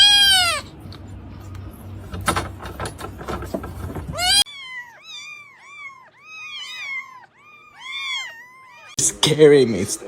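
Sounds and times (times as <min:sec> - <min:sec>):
kitten meowing: 0:00.0 - 0:00.7, 0:04.2 - 0:09.0.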